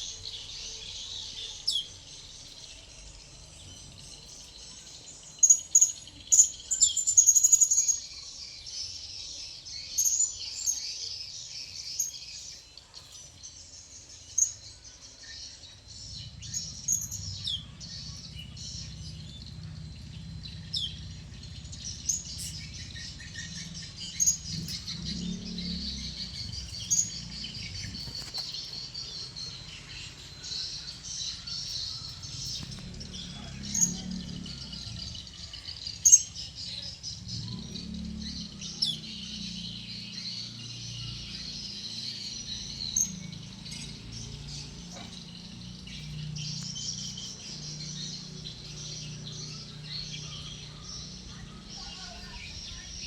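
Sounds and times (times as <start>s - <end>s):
low rumble: 15.9s - 35.6s
parrots chirping: 16.2s - 36.4s.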